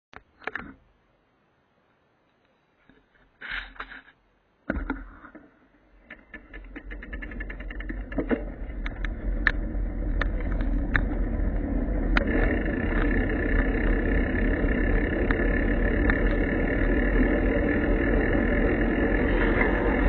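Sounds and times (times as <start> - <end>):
low steady rumble: 5.7 - 20.0
sharp clicks and crackles: 6.0 - 20.0.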